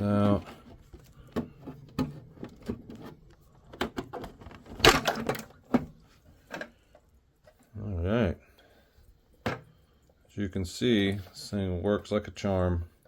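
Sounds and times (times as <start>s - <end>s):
plastic clunks: 1.2s - 6.8s.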